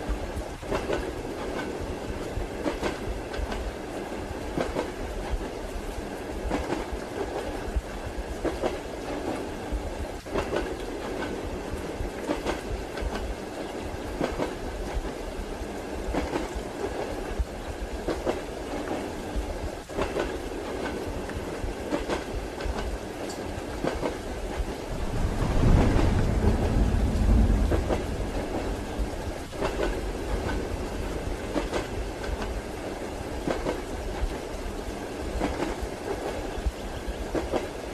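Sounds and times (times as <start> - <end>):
train wheels clacking over rail joints: 0.0 - 1.8, 10.2 - 11.4, 19.8 - 34.4
rushing rumble of running train: 0.0 - 37.9.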